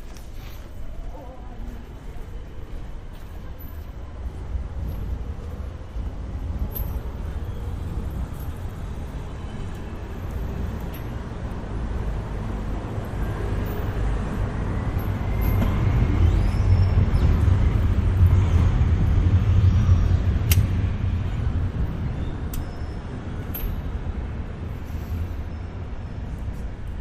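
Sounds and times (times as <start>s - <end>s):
sharp click: 20.5s - 20.7s.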